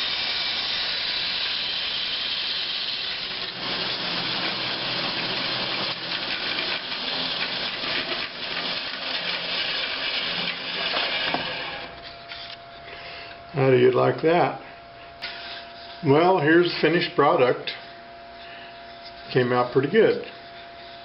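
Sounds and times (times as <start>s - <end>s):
band saw cutting wood: 0.0s - 12.0s.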